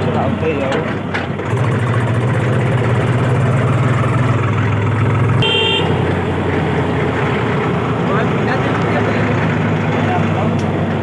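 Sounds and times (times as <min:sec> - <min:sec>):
tractor diesel engine droning: 0:00.0 - 0:11.0
short high horn toot: 0:05.4 - 0:06.0.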